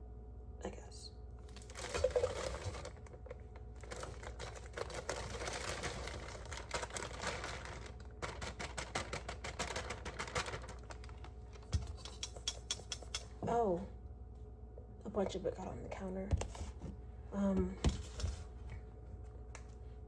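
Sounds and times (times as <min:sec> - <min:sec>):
plastic packet crinkling: 0:01.4 - 0:12.4.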